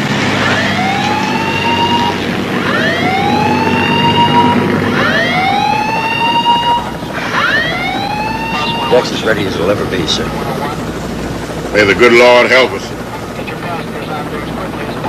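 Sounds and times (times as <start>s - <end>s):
warning siren whooping: 0.0s - 11.0s.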